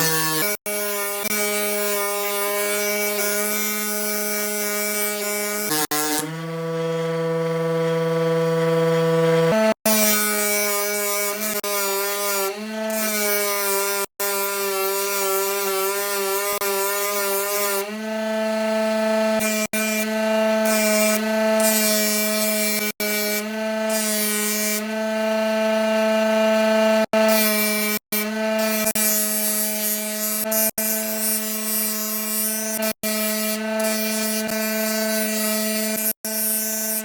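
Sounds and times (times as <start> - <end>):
power tool motor humming: 0.0 - 37.0.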